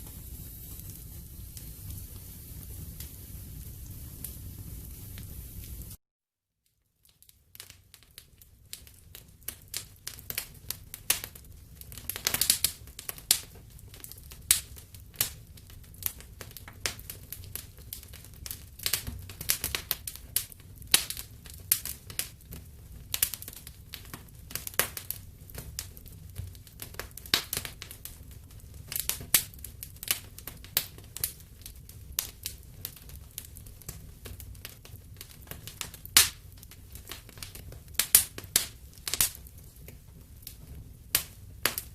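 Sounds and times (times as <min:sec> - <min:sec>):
wood fire crackling: 0:00.0 - 0:06.0, 0:06.7 - 0:41.9.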